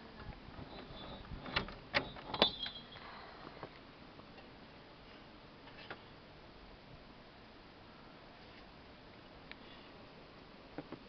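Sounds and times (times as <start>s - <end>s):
faint steady hiss: 0.0s - 11.0s
screen door metallic clacks: 0.6s - 3.0s.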